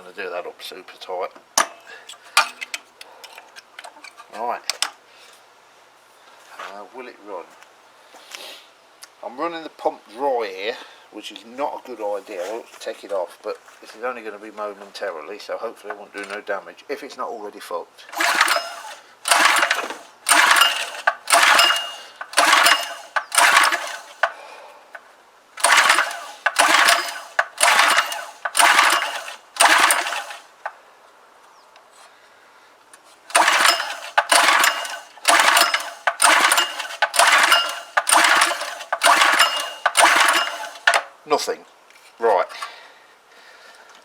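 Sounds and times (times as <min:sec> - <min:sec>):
engine pull-starter being yanked: 0:18.1 - 0:24.4, 0:25.6 - 0:30.8, 0:33.3 - 0:41.1
engine turning over: 0:18.1 - 0:24.4, 0:25.6 - 0:30.7, 0:33.3 - 0:41.1.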